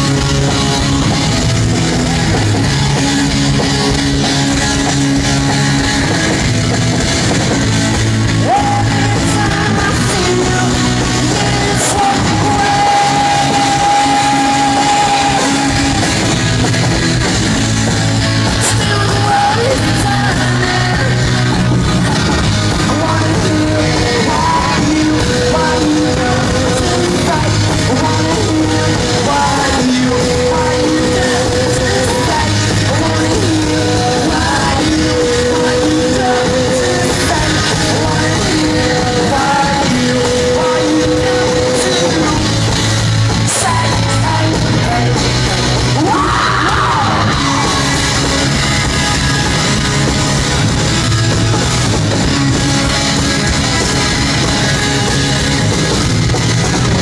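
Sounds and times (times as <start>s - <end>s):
live rock band playing: 0.0s - 57.0s
person singing long notes: 8.2s - 16.6s, 18.5s - 22.1s, 22.7s - 42.7s.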